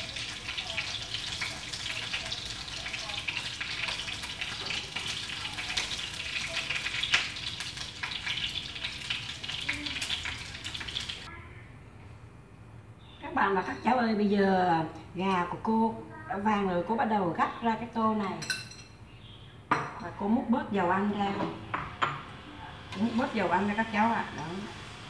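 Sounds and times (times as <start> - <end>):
chicken sizzling in frying pan: 0.0 - 11.3.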